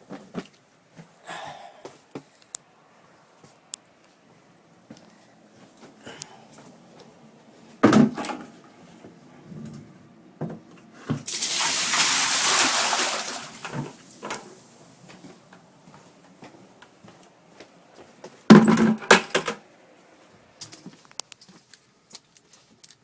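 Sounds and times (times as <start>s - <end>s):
water pouring into a bucket: 11.3s - 14.5s.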